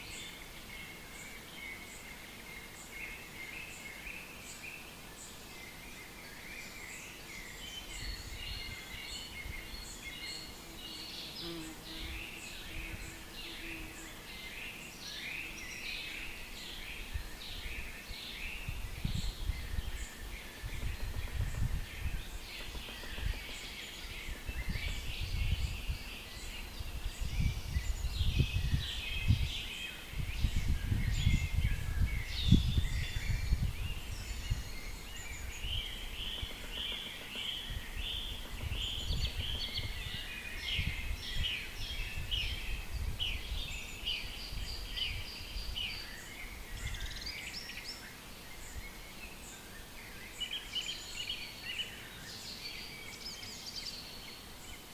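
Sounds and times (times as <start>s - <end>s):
songbirds chirping and trilling: 0.0s - 54.9s.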